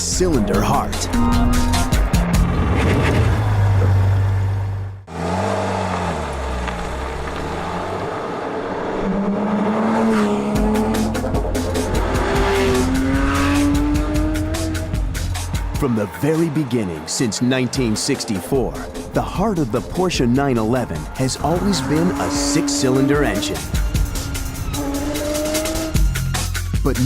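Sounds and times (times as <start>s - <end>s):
background music: 0.0s - 3.4s, 10.2s - 27.0s
car engine revving: 0.0s - 26.8s.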